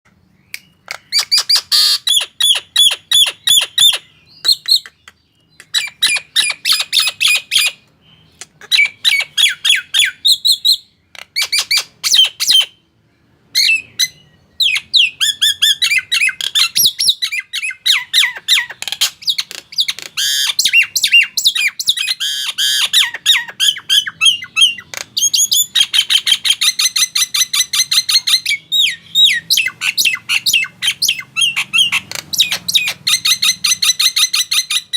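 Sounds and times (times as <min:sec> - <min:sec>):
myna squawking and whistling: 0:00.9 - 0:12.8, 0:13.6 - 0:34.9.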